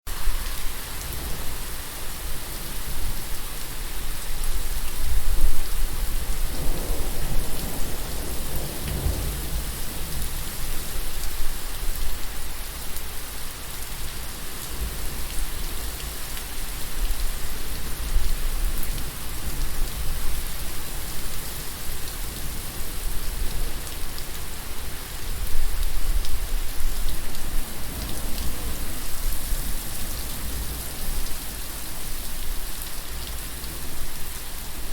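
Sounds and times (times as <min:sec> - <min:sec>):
steady rain falling: 0:00.1 - 0:34.9
low roll of thunder: 0:06.3 - 0:10.5.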